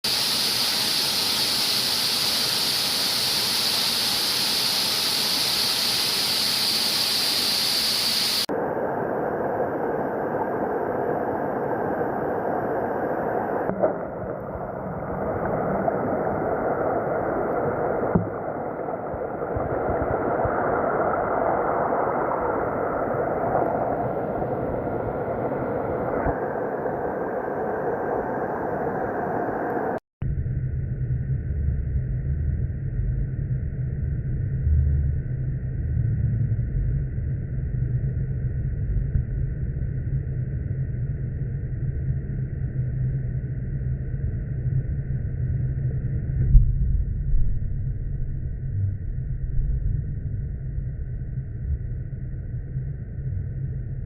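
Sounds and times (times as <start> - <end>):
waterfall rushing: 0.1 - 8.5.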